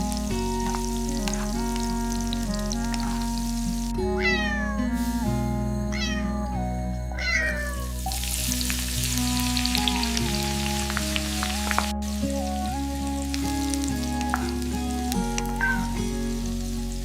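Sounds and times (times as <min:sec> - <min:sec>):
cat meowing: 0:04.2 - 0:04.9, 0:05.9 - 0:06.4, 0:07.2 - 0:08.2, 0:15.6 - 0:16.0.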